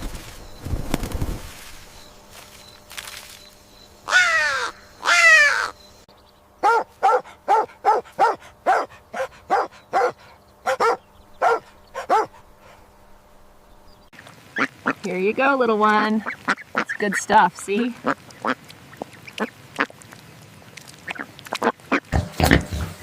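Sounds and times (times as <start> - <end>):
bird long falling calls: 1.6 - 6.8
bird short harsh calls: 4.1 - 5.8.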